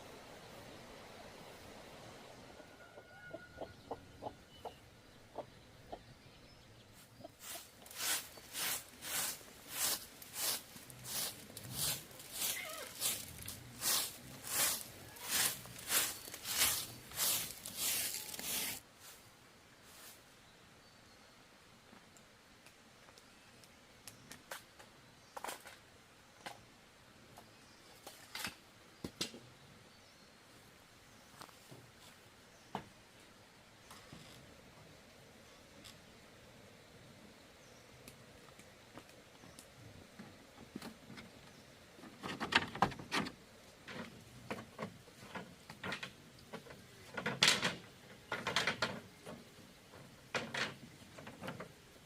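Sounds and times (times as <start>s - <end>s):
hand tool rasping bamboo: 7.4s - 18.8s.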